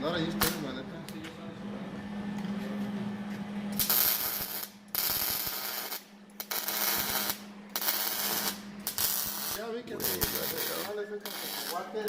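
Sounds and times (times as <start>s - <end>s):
steady low hum: 0.0s - 12.0s
welder crackling: 3.7s - 12.0s.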